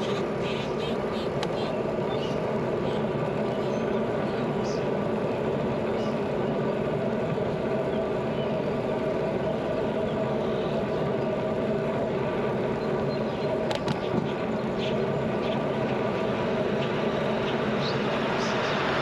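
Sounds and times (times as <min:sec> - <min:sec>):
bicycle tyres rolling on pavement: 0:00.0 - 0:19.0.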